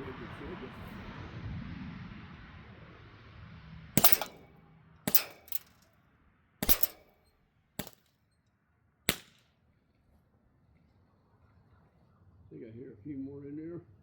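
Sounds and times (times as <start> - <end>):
bb gun shots: 4.0 - 4.4, 5.1 - 5.8, 6.6 - 7.1, 7.8 - 8.0, 9.1 - 9.4.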